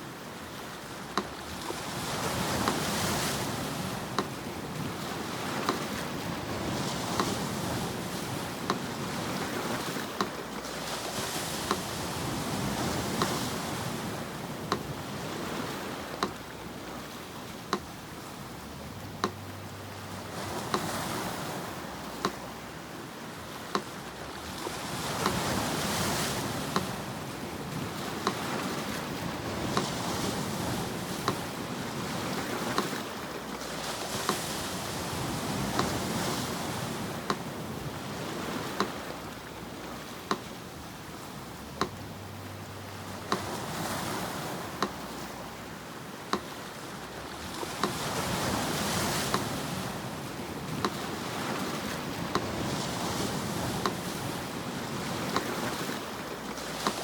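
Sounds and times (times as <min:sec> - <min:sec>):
sea surf washing: 0:00.0 - 0:57.0
metronome ticking: 0:02.4 - 0:04.5, 0:05.5 - 0:10.5, 0:11.6 - 0:22.9, 0:38.6 - 0:40.9, 0:41.5 - 0:45.7.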